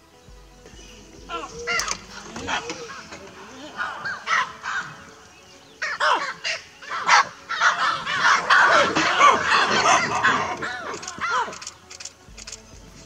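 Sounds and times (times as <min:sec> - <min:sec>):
birds cawing: 0:00.0 - 0:13.0.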